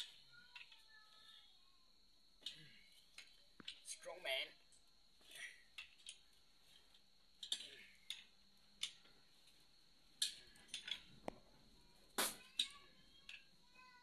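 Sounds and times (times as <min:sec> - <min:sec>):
hand tools clinking on metal: 0:07.4 - 0:09.1.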